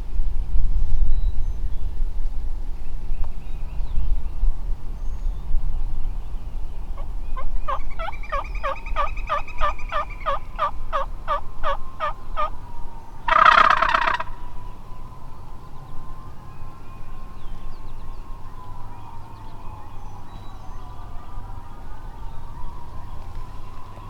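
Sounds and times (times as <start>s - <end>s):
turkey gobbling: 7.7s - 12.5s, 13.3s - 14.5s
turkey yelps: 7.7s - 12.5s, 13.3s - 14.4s.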